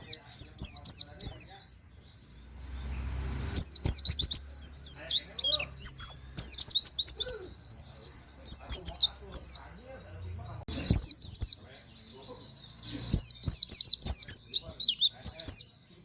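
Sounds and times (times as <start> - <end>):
bird singing high quick notes: 2.6 - 9.6.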